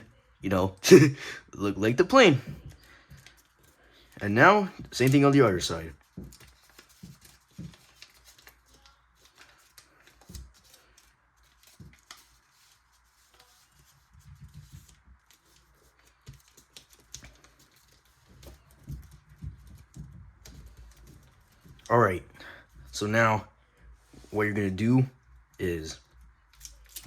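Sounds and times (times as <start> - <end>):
paper being folded and creased: 2.5 - 21.9, 25.4 - 27.0.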